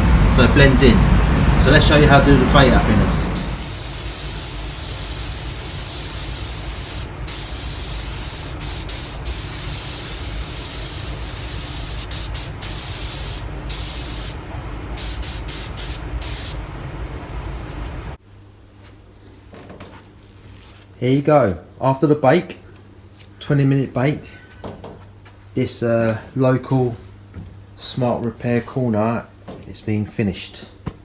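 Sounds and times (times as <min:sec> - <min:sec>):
spray nozzle hissing: 0:03.4 - 0:14.4, 0:15.0 - 0:16.6.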